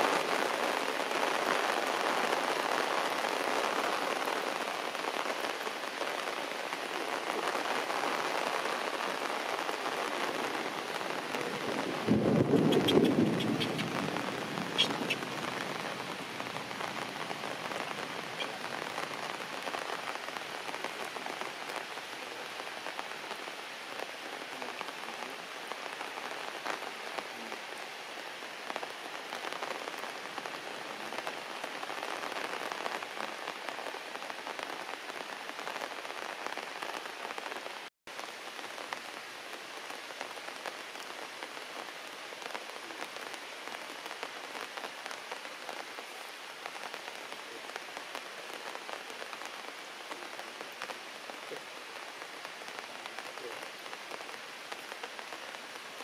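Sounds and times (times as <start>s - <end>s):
heavy rain on plants: 0.0s - 56.0s.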